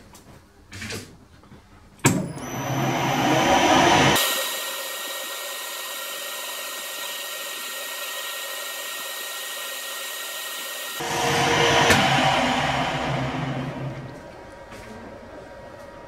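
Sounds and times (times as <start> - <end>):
motor whine: 2.4 - 14.7
metal lathe whirring: 2.4 - 14.8.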